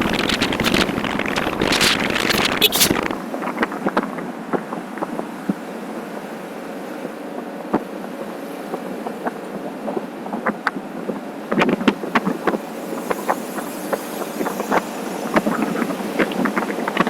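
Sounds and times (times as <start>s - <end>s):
sharp knocks and crackles: 0.0s - 4.6s
wind rushing over microphone: 0.0s - 17.0s.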